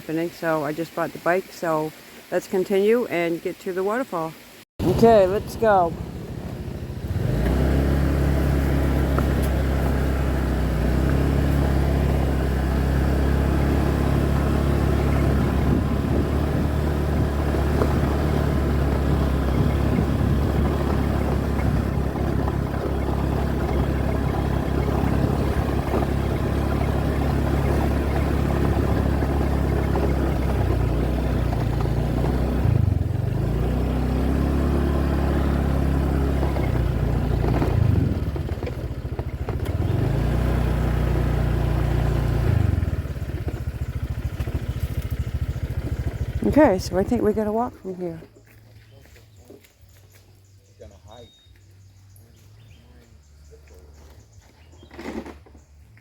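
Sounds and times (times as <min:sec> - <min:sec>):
motorbike engine running: 0:04.8 - 0:50.6
wind rushing over microphone: 0:14.4 - 0:22.6.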